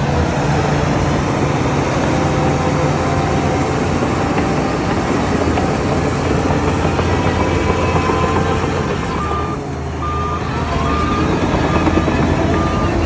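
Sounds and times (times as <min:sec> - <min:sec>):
diesel machinery running: 0:00.0 - 0:13.0
short high-pitched tones: 0:05.6 - 0:13.0.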